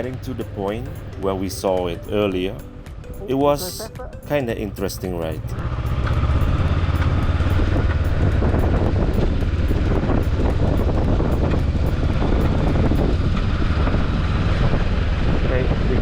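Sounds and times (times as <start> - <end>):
motorbike engine rumble: 0.0 - 16.0
wind buffeting microphone: 5.6 - 16.0.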